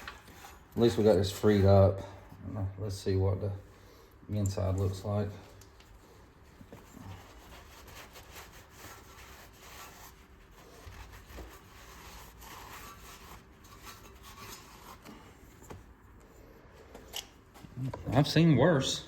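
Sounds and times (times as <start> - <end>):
metal parts scraping and rubbing: 0.0 - 1.8, 6.9 - 15.4.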